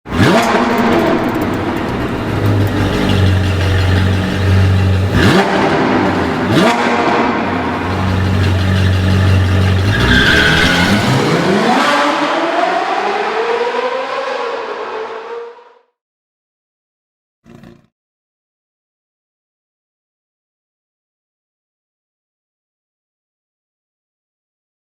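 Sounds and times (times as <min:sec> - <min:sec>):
sports car engine accelerating: 0:00.1 - 0:15.9.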